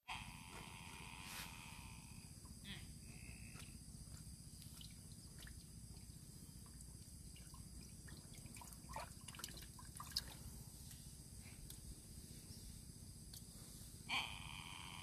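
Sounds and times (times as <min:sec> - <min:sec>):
faint animal calls: 0:00.0 - 0:03.8, 0:14.1 - 0:15.0
insect hum: 0:00.0 - 0:15.0.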